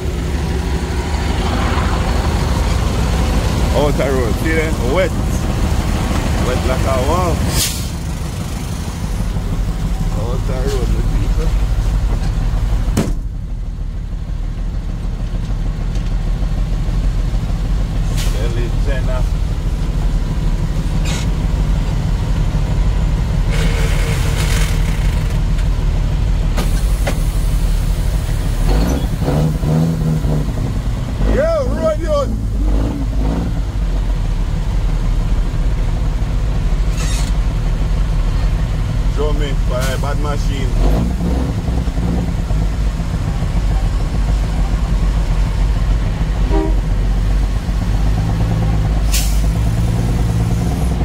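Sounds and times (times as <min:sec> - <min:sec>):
truck engine running: 0:00.0 - 0:51.0
short hiss: 0:49.1 - 0:49.6.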